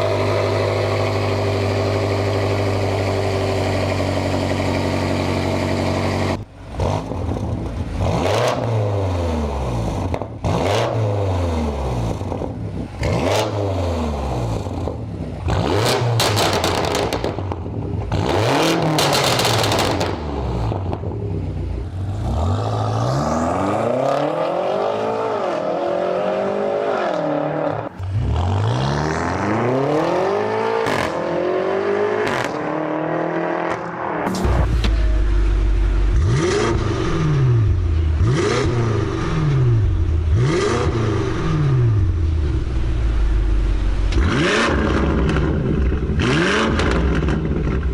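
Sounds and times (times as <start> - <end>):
car engine revving: 0.0 - 47.9
exhaust crackling pops: 16.2 - 18.1, 33.7 - 38.0.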